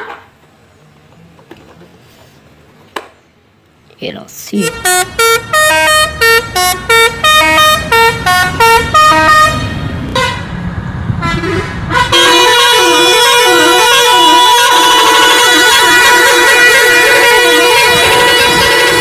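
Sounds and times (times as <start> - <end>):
musical bus horn: 4.6 - 10.6, 11.2 - 19.0.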